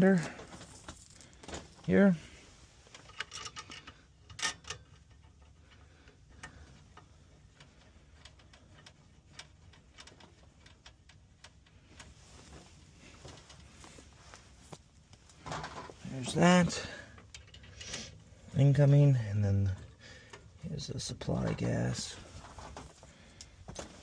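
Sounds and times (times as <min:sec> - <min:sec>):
small clicks of fittings: 0:02.9 - 0:12.2, 0:17.1 - 0:18.2.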